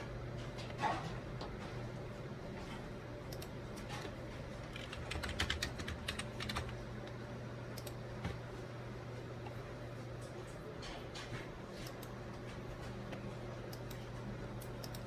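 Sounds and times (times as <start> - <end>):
computer keyboard typing: 3.3 - 8.0, 12.9 - 15.0.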